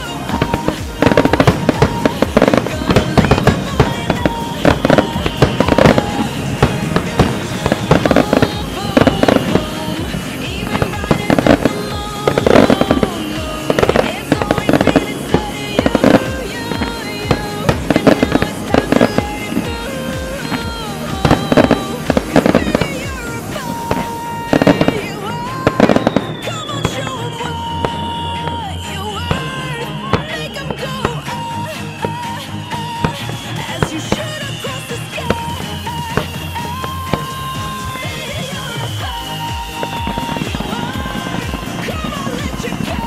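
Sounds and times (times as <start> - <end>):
fireworks bangs and crackles: 0.0 - 43.0
music playing: 0.0 - 43.0.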